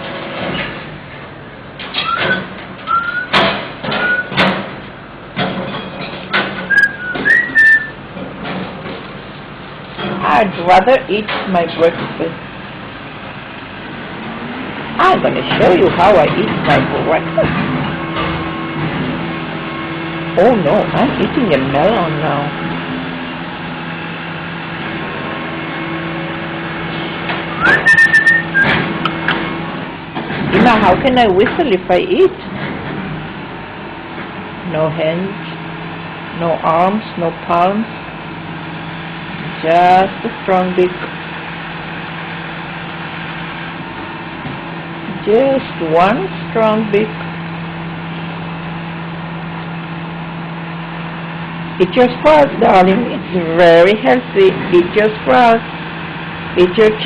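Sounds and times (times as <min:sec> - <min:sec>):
steady low hum: 0:00.0 - 0:57.0
parrot whistling: 0:02.0 - 0:03.4, 0:04.0 - 0:04.4, 0:06.6 - 0:08.0, 0:27.6 - 0:28.8.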